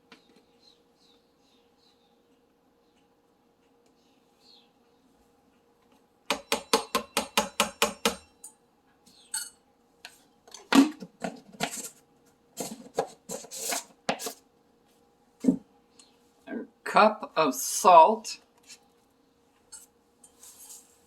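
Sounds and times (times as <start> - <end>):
scooping dry powder in bowl: 19.7 - 21.0.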